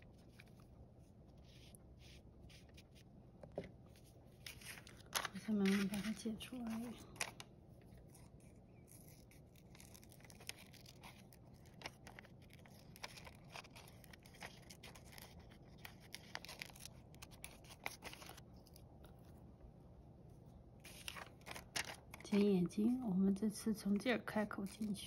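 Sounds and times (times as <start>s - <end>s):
scissors snipping paper: 4.5s - 7.4s, 8.0s - 18.8s, 23.9s - 25.0s.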